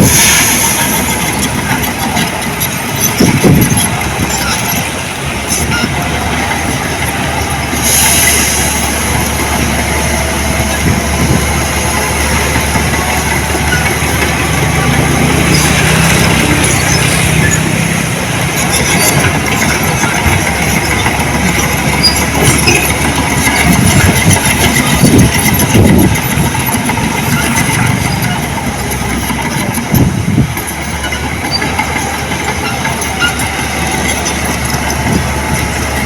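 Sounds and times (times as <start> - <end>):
heavy machinery diesel engine: 0.0 - 36.0.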